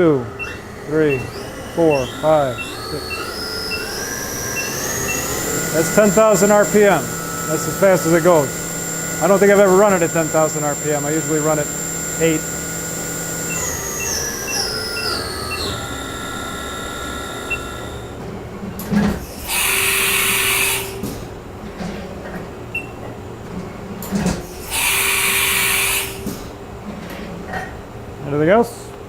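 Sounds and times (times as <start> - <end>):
hissing mechanical bursts: 0.0 - 18.2, 19.2 - 21.2, 24.4 - 26.5
low hum: 0.0 - 18.2
spindle whine: 0.0 - 18.5.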